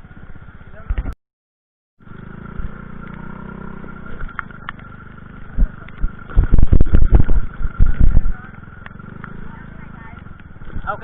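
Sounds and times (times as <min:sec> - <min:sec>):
motorcycle engine idling: 0:00.0 - 0:01.1, 0:02.0 - 0:11.0
loud low thumps: 0:05.6 - 0:08.4.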